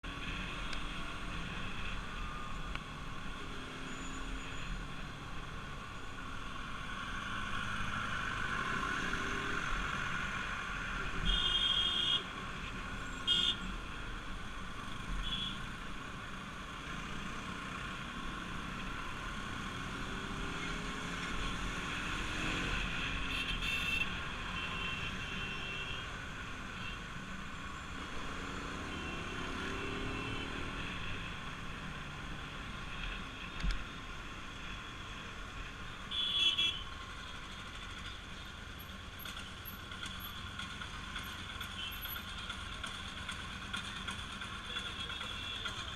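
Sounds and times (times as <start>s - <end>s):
wind and road noise: 0.0s - 45.9s
motorcycle engine running: 39.2s - 45.9s.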